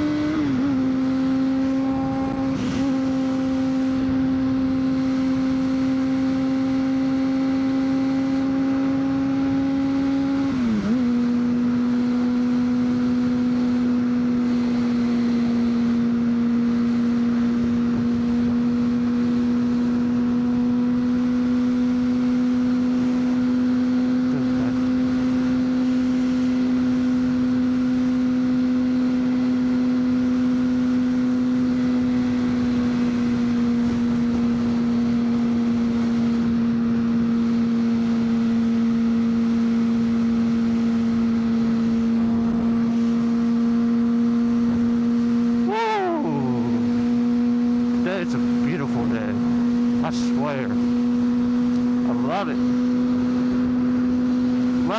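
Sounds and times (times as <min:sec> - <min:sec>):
motorcycle engine at high pitch: 0:44.5 - 0:48.6.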